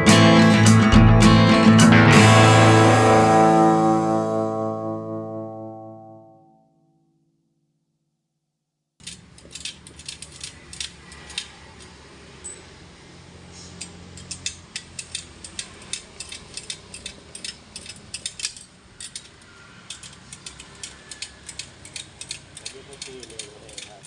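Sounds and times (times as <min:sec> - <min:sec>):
low hum: 0:00.0 - 0:06.6
metallic tool clicks: 0:09.0 - 0:12.6, 0:13.8 - 0:24.0.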